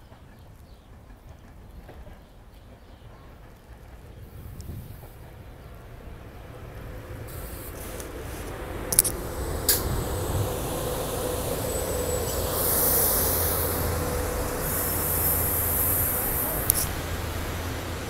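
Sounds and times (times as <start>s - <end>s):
electric train rumbling past: 0.0s - 18.0s
high hiss: 6.9s - 18.0s
steady hum: 7.0s - 18.0s
sharp clicks: 8.9s - 9.8s, 16.7s - 16.9s.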